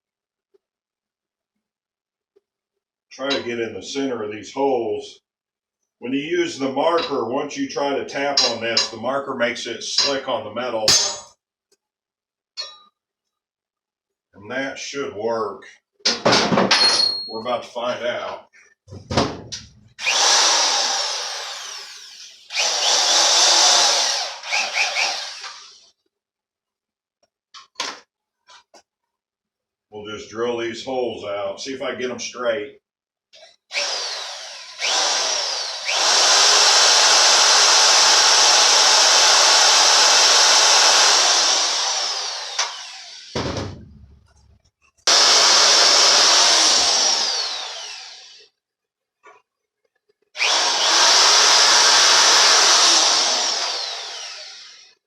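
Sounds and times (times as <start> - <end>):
power drill boring into metal: 20.0 - 25.9, 33.4 - 43.4, 45.1 - 48.5, 50.4 - 55.0.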